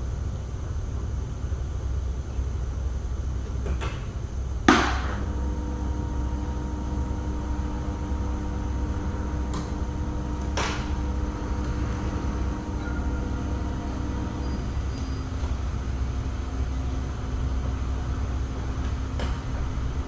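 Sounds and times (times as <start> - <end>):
faint multi-tone hum: 0.0 - 20.0
steady low rumble: 4.5 - 20.0.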